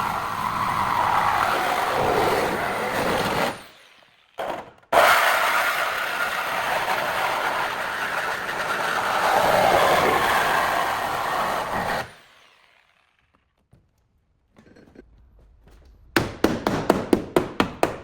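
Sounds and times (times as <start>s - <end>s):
power tool running: 0.0s - 13.4s.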